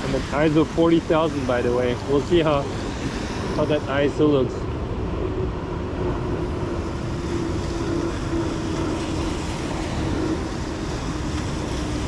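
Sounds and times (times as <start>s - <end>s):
heavy rain hissing: 0.0s - 4.4s
wind rumbling on microphone: 0.0s - 12.0s.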